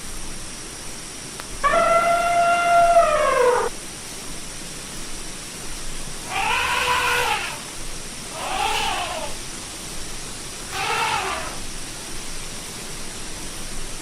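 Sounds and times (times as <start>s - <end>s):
elephant trumpeting: 1.6s - 3.7s, 6.2s - 7.7s, 8.3s - 9.4s, 10.7s - 11.7s.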